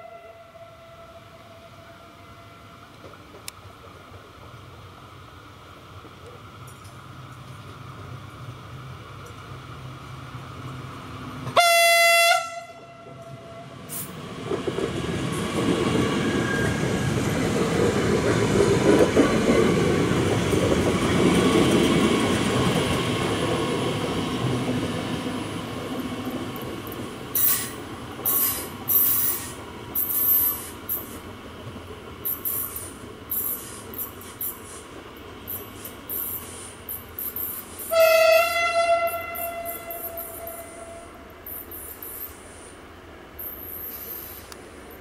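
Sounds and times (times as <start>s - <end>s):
train horn blast: 0.0s - 2.9s, 11.4s - 13.9s, 37.9s - 41.3s
train rumbling past: 0.0s - 45.0s
short hissing bursts: 27.4s - 31.3s, 32.3s - 38.0s, 41.4s - 44.7s.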